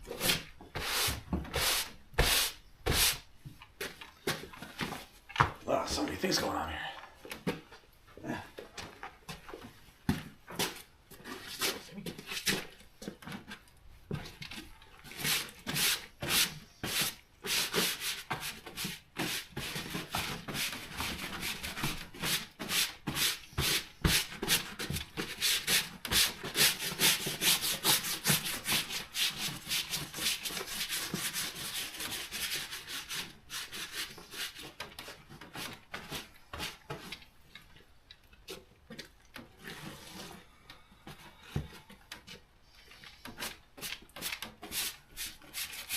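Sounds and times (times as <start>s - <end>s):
rubbing on a surface: 15.1s - 37.2s, 43.1s - 45.9s.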